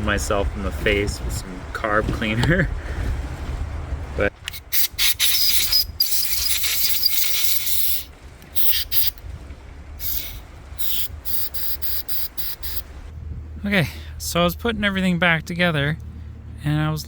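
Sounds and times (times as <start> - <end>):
aerosol spray hissing: 4.5 - 9.2, 10.0 - 12.9.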